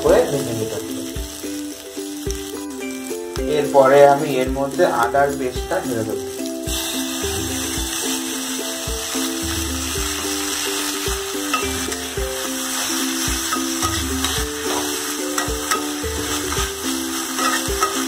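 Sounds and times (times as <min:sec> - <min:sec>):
background music with steady beat: 0:00.0 - 0:18.0
onions sizzling in hot oil: 0:00.0 - 0:18.0
metal spatula stirring: 0:10.2 - 0:18.0.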